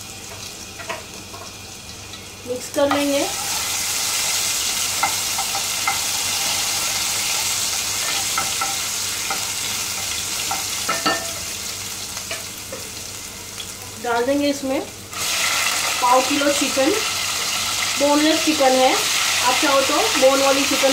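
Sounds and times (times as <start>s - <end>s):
paste sizzling in hot oil: 2.9s - 13.5s, 15.1s - 20.9s.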